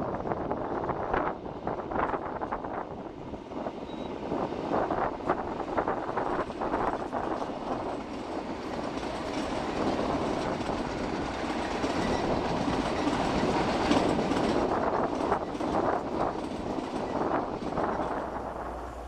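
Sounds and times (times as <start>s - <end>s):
wheels clicking over rail joints: 6.2s - 18.3s.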